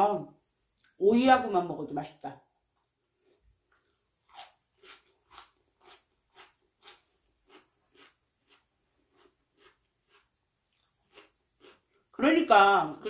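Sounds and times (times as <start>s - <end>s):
cucumber crunching: 3.2s - 12.1s.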